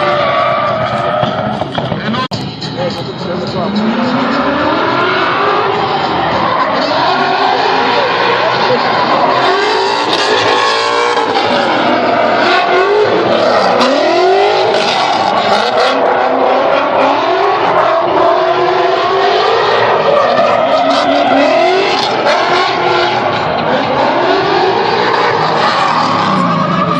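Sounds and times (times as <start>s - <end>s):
car engine revving hard: 2.9s - 26.9s.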